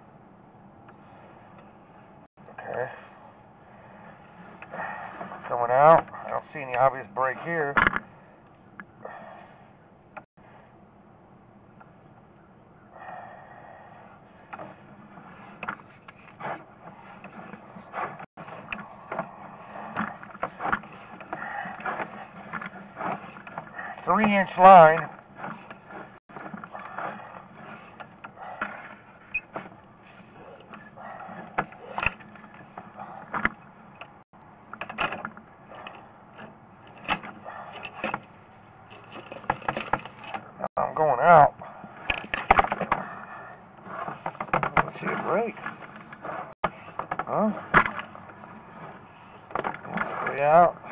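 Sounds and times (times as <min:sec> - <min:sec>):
low steady hum: 0:00.0 - 0:50.9
cable knocks and rattles: 0:14.5 - 0:40.6, 0:42.0 - 0:43.2, 0:43.9 - 0:50.9
cable clicks and knocks: 0:38.9 - 0:40.5, 0:42.0 - 0:43.1.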